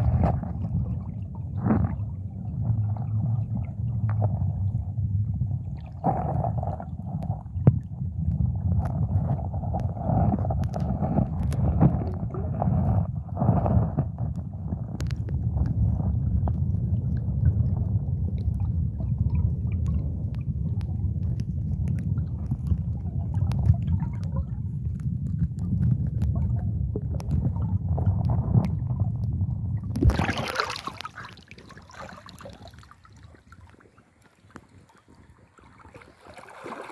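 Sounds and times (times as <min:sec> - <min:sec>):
heavy low rumble: 0:06.6 - 0:31.5
river water gurgling: 0:30.0 - 0:36.9.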